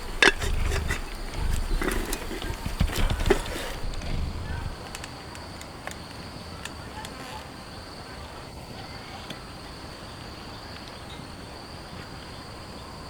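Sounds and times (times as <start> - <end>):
background hiss: 0.0 - 5.4
faint ticks: 0.0 - 7.5
insects chirring: 0.0 - 13.0.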